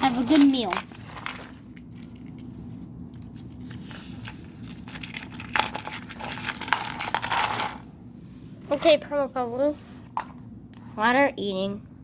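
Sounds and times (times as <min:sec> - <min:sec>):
plastic toys clicking: 0:00.0 - 0:02.5, 0:04.6 - 0:07.8.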